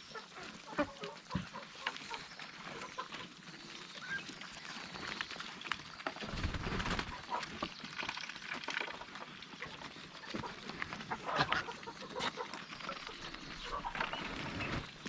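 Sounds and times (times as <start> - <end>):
ducks calling softly: 0.0 - 5.3, 8.8 - 15.0
ducks feeding clicks and taps: 0.0 - 15.0.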